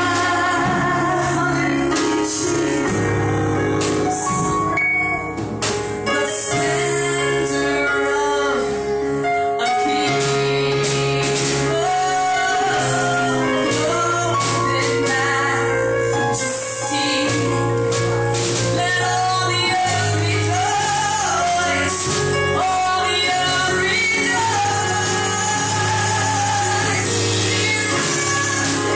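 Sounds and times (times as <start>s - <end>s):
people singing gospel: 0.0s - 4.3s, 9.6s - 28.9s
percussion: 0.0s - 8.2s, 9.6s - 28.9s
low bass notes: 0.0s - 9.2s
band playing: 0.0s - 28.9s.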